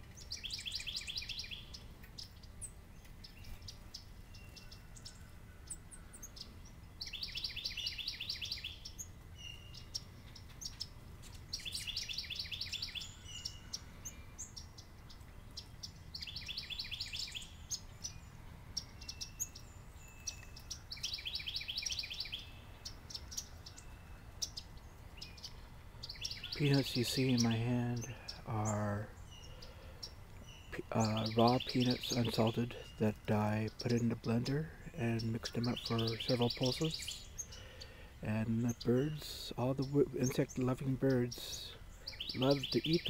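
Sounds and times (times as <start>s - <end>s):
songbird trilling: 0.0s - 43.0s
bird chip notes: 26.2s - 43.0s.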